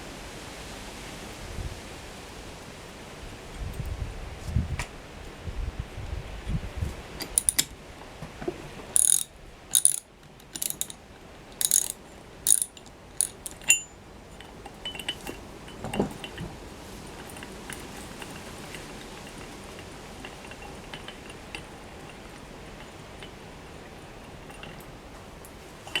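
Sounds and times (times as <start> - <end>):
metal tools clinking: 7.2 - 7.7, 9.0 - 11.0, 11.6 - 14.0
ratchet wrench clicking: 7.2 - 7.7, 9.0 - 11.0, 11.6 - 13.9.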